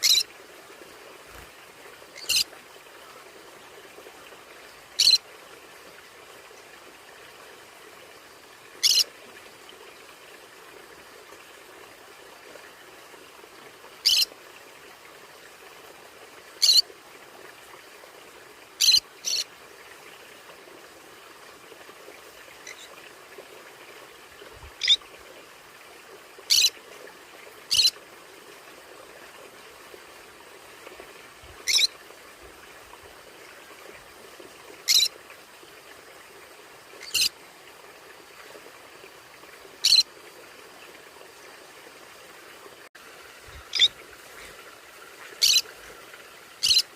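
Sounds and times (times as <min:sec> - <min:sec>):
parrot squawking: 0:05.0 - 0:05.2, 0:08.8 - 0:09.0, 0:31.7 - 0:31.9, 0:43.7 - 0:43.9, 0:45.4 - 0:45.6, 0:46.6 - 0:46.8.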